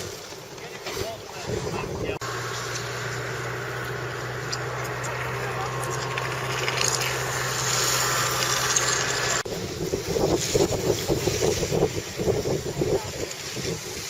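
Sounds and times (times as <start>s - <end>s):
wind buffeting microphone: 1.3s - 14.0s.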